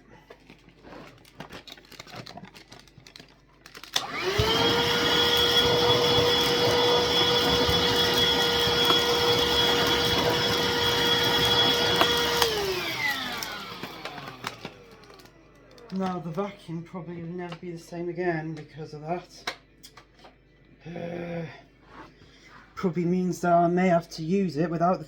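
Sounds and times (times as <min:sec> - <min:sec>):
vacuum cleaner motor: 0:03.7 - 0:16.2.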